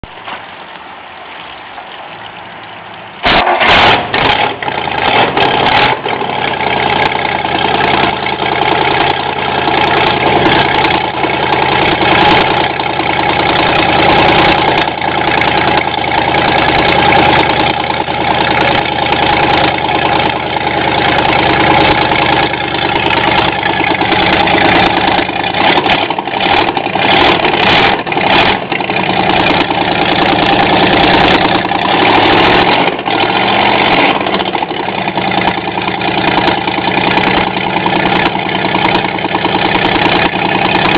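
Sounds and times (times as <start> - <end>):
engine starting and idling: 3.2 - 40.9.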